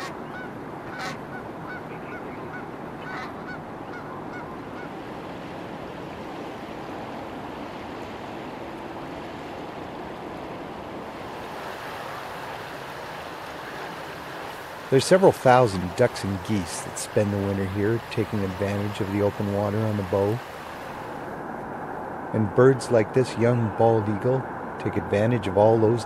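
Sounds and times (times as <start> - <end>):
geese honking: 0.0 - 4.9
steady rushing noise: 5.0 - 26.0.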